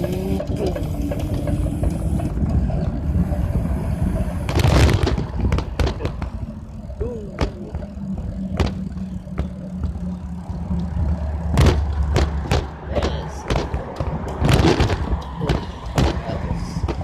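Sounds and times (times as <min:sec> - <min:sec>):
bicycle riding rumble: 0:00.0 - 0:17.0
sharp knocks: 0:08.5 - 0:10.0, 0:11.5 - 0:16.2.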